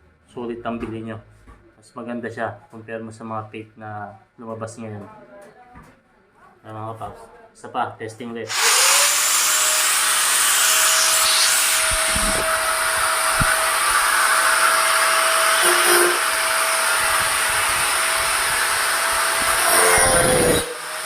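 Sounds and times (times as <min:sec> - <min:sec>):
angle grinder whining: 0:08.5 - 0:21.0.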